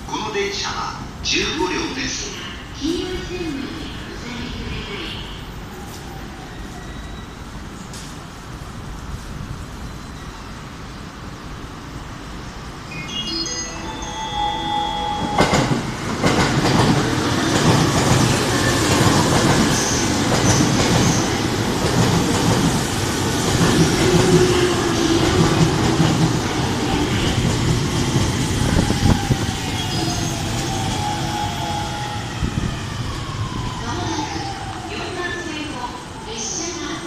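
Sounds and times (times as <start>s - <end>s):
train wheels rumbling and clattering: 15.2s - 35.8s.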